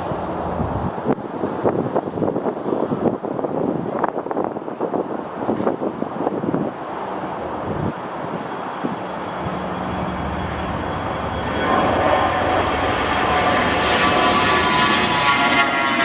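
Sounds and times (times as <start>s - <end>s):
engine whine: 0.0s - 1.3s, 6.7s - 16.0s
airliner engines rumbling: 0.0s - 16.0s.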